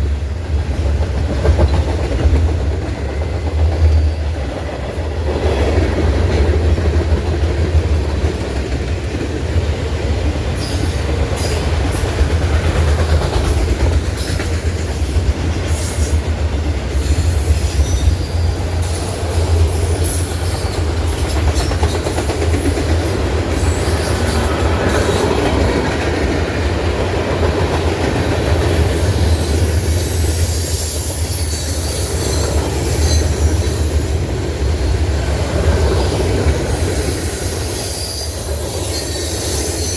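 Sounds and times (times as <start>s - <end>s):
train wheels rumbling on rails: 0.0s - 39.9s
high wheel squeal: 29.1s - 35.0s, 36.0s - 39.9s.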